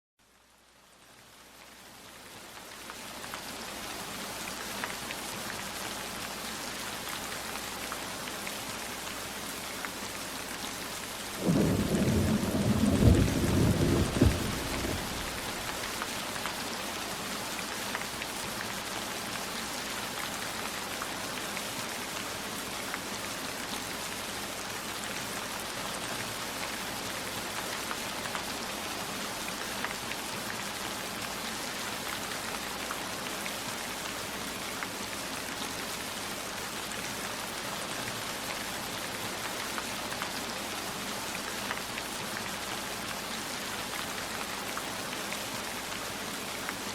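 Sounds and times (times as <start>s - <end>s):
steady rain falling: 0.2s - 46.9s
low rumble of thunder: 11.4s - 15.9s.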